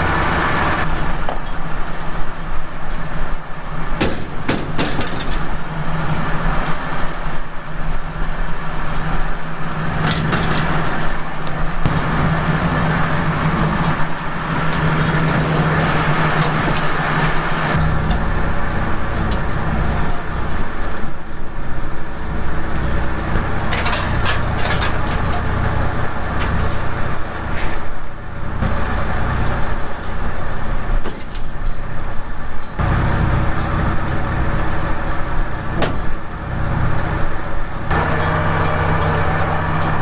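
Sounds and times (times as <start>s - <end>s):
vehicle engine humming: 0.0s - 1.0s, 9.7s - 31.0s, 32.8s - 40.0s.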